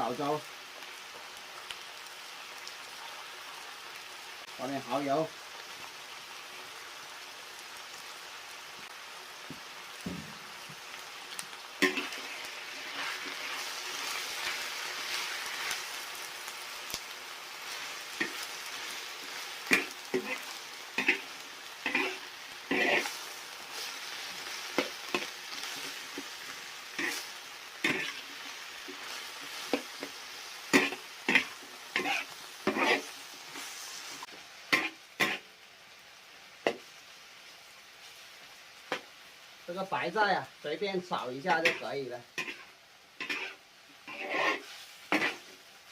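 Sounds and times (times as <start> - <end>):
stir-fry sizzling: 0.0 - 45.9
spatula scraping pan: 11.8 - 15.8, 19.7 - 23.9, 27.0 - 28.2, 30.7 - 33.9, 34.7 - 35.4, 41.6 - 45.5.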